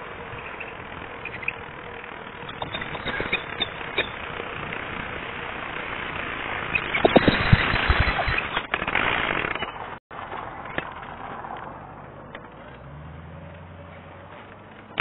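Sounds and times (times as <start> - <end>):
wind noise: 0.0 - 10.0
bicycle clicks and rattles: 0.0 - 11.6
bicycle tyres rolling: 0.0 - 15.0.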